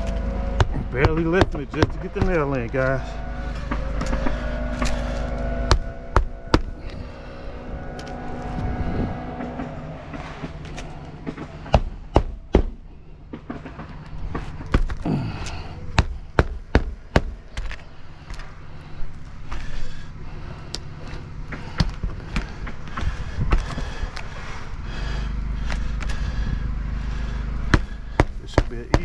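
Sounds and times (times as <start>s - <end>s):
steady low rumble: 0.0s - 29.0s
hammer driving nails: 13.4s - 17.8s.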